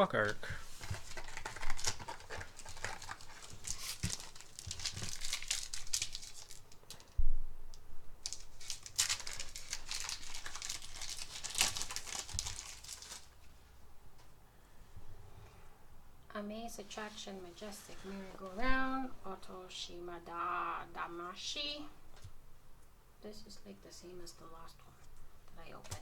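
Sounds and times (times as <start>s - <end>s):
foil wrappers crinkling and tearing: 0.5s - 7.2s, 8.2s - 13.4s.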